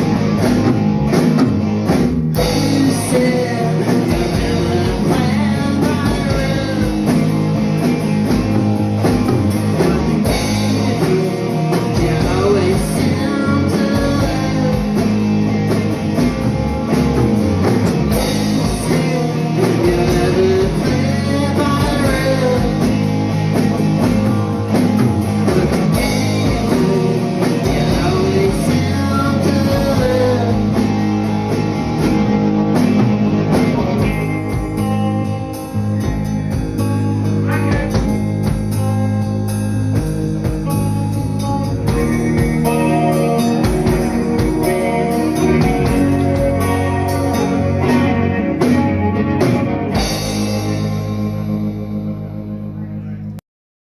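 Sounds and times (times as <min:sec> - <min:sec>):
drum kit: 0:00.0 - 0:52.8
electric guitar: 0:00.0 - 0:53.4
person singing: 0:02.4 - 0:07.4, 0:10.3 - 0:15.4, 0:18.4 - 0:23.2, 0:26.0 - 0:31.1.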